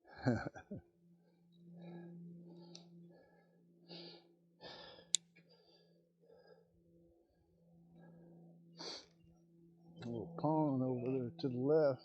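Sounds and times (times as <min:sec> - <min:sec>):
low steady hum: 0:00.0 - 0:12.0
person breathing in puffs: 0:03.2 - 0:06.7, 0:08.8 - 0:09.2.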